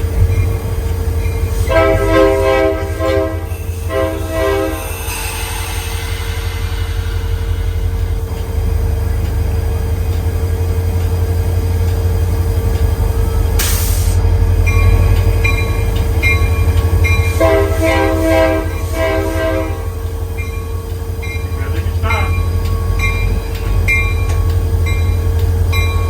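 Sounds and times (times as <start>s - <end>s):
diesel locomotive engine drone: 0.0s - 26.0s
locomotive air horn blasts: 1.5s - 5.2s, 17.3s - 20.0s
brief hiss: 13.6s - 14.2s.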